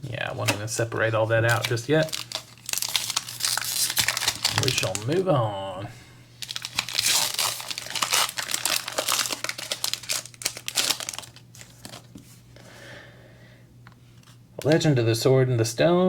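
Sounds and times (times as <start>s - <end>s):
foil wrapper tearing and crinkling: 1.4s - 5.2s, 6.4s - 12.1s.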